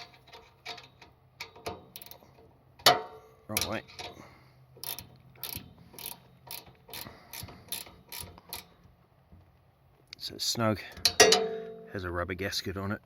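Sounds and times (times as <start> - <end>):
ratchet wrench clicking: 0.0 - 4.2, 4.8 - 8.8.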